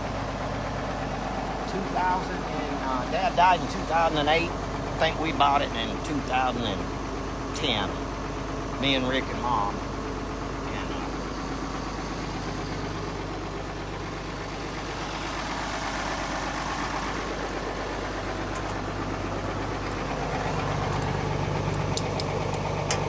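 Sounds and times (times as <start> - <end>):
tractor engine idling: 0.0 - 23.0.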